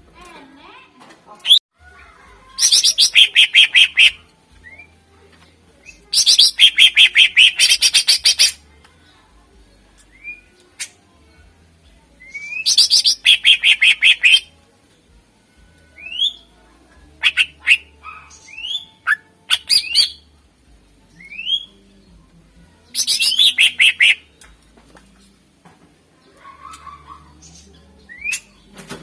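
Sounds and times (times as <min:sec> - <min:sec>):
bird singing whistled notes: 0:02.6 - 0:05.0, 0:05.8 - 0:08.5, 0:10.0 - 0:10.6, 0:12.2 - 0:14.5, 0:16.0 - 0:16.5, 0:17.2 - 0:20.2, 0:21.1 - 0:21.9, 0:22.9 - 0:24.4, 0:27.4 - 0:28.7.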